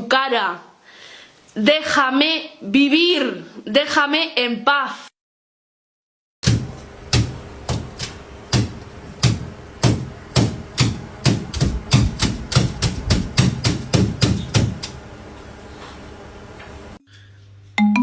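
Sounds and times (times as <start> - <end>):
sharp knocks with low thuds: 6.4 - 15.0.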